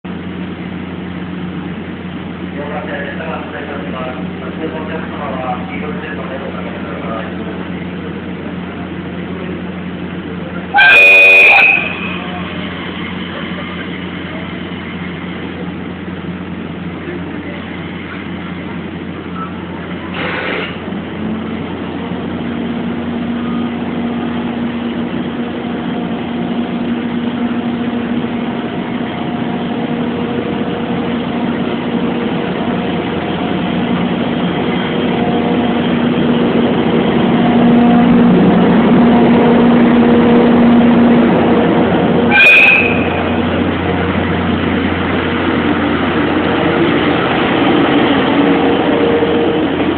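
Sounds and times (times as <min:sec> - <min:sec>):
electric train humming: 0:00.1 - 0:49.9
brief hiss: 0:20.1 - 0:20.8.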